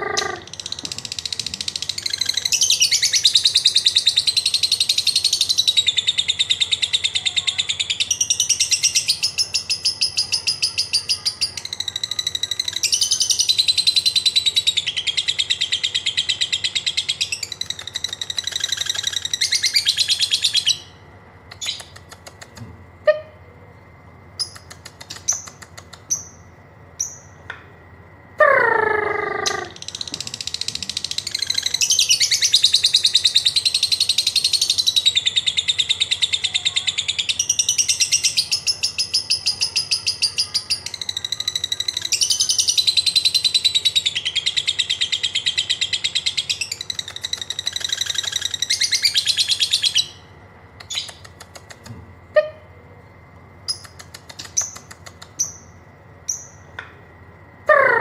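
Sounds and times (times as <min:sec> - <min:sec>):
bird high-pitched chattering trill: 0:00.0 - 0:23.4, 0:24.4 - 0:27.4, 0:28.4 - 0:52.7, 0:53.6 - 0:56.7
bird clicks and chirps: 0:17.4 - 0:19.5, 0:21.5 - 0:22.7, 0:24.4 - 0:26.4, 0:46.5 - 0:50.0, 0:50.8 - 0:52.0, 0:53.6 - 0:55.7.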